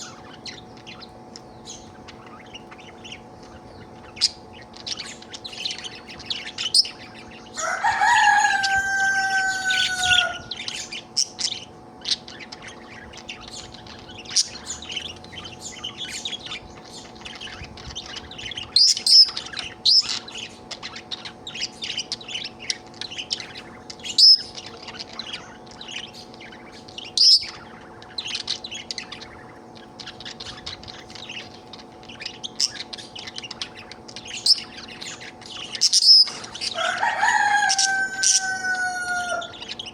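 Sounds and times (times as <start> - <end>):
budgerigar chattering: 0.0 - 39.9
drawn-out falling bird call: 7.5 - 11.2, 36.0 - 39.8.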